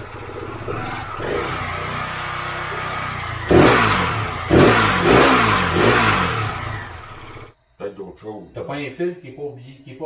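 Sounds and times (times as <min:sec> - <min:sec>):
motorcycle engine idling and revving: 0:00.0 - 0:07.6.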